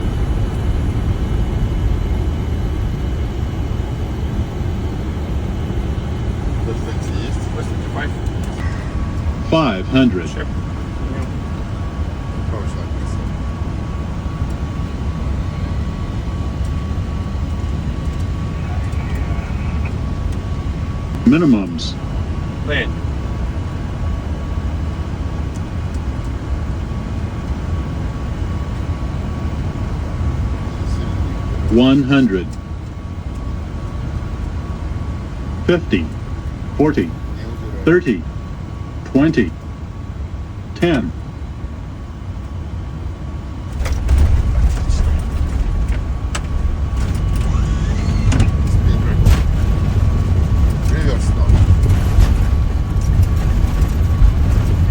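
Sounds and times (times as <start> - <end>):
rumble of airflow and engines: 0.0 - 54.9.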